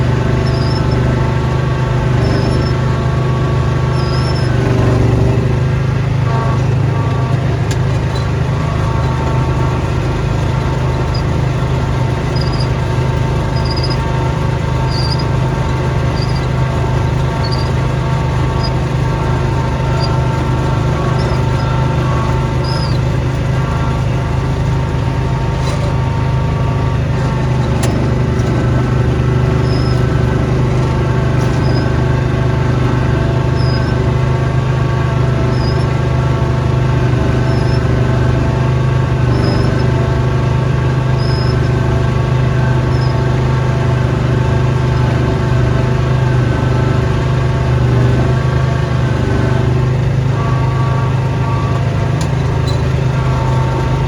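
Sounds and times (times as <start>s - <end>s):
snowblower engine running: 0.0s - 54.0s
faint high chirp: 0.4s - 1.1s, 2.1s - 5.4s, 12.3s - 12.8s, 13.5s - 14.1s, 14.8s - 15.4s, 16.0s - 17.8s, 18.4s - 24.1s, 25.6s - 30.3s, 31.4s - 32.0s, 33.5s - 34.0s, 41.2s - 41.7s.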